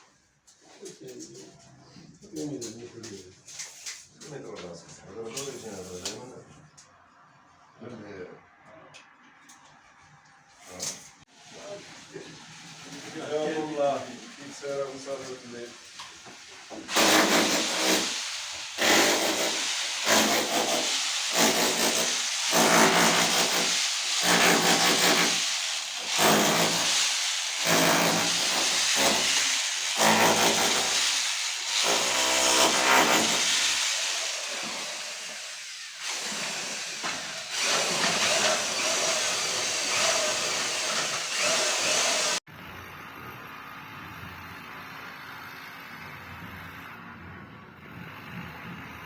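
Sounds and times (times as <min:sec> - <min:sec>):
tool cutting through tile: 0:16.7 - 0:42.4.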